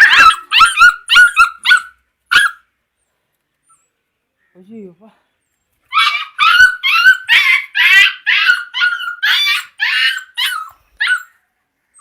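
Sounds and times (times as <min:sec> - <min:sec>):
puppy yelping: 0:00.0 - 0:02.7, 0:05.9 - 0:12.0.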